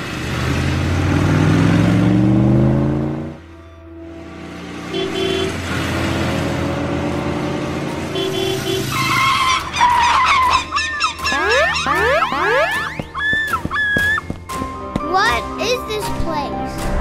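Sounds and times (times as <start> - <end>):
tyre squeal: 8.6 - 14.3
cartoon engine running: 9.6 - 14.2.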